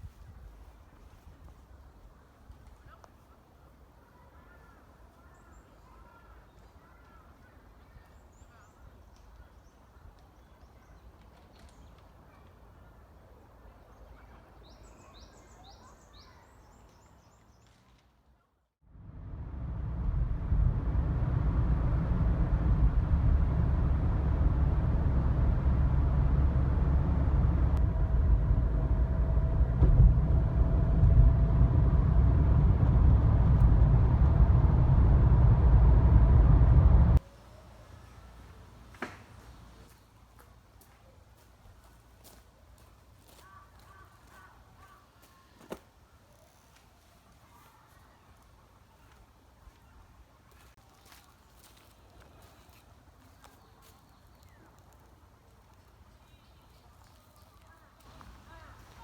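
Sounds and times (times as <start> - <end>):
loud low rumble: 18.9 - 37.2.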